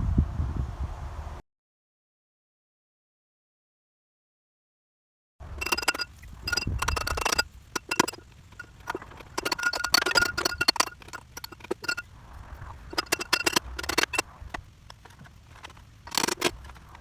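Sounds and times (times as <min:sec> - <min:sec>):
hand tools clinking on metal: 0:05.5 - 0:17.0.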